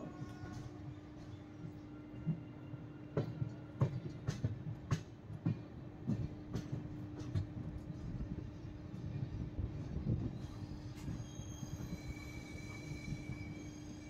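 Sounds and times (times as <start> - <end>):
train rumble: 0.0 - 14.0
train wheels clacking over rail joints: 3.1 - 8.0.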